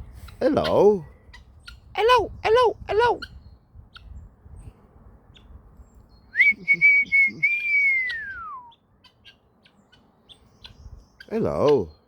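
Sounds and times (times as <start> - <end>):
whistled call: 6.3 - 8.8.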